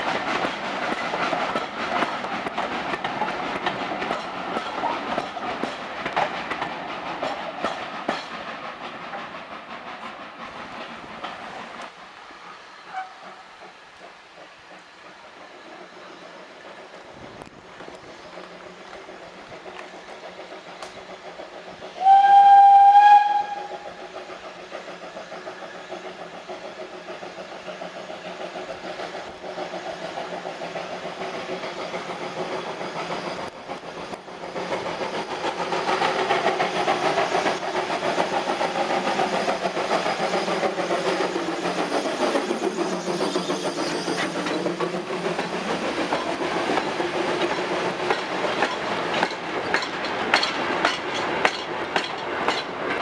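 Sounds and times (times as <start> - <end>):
train rumbling by on rails: 0.0 - 53.0
steam locomotive whistle: 22.0 - 24.0.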